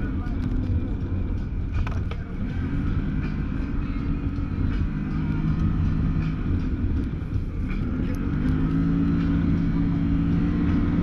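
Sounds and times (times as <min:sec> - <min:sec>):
vehicle engine running under load: 0:00.0 - 0:11.0.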